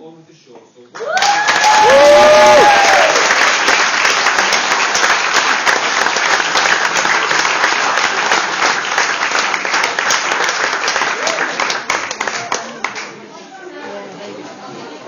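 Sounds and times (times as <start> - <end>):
whoop of cheering: 1.0 - 3.4
audience applauding: 1.0 - 13.2.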